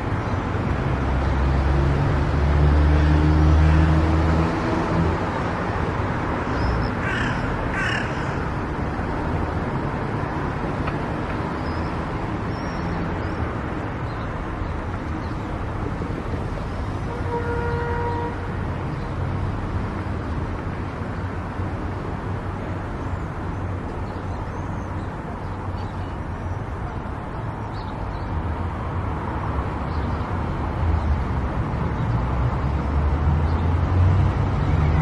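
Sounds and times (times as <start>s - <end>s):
crow cawing: 7.0s - 8.6s.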